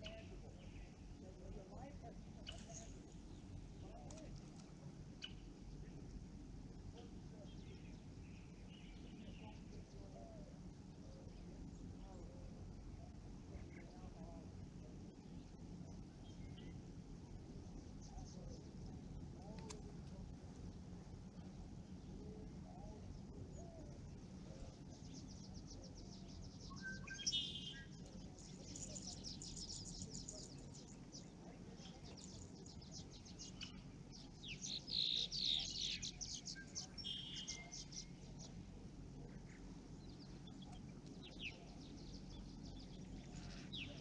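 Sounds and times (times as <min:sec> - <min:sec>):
low outdoor rumble: 0:00.0 - 0:44.0
songbirds chirping and trilling: 0:00.0 - 0:44.0.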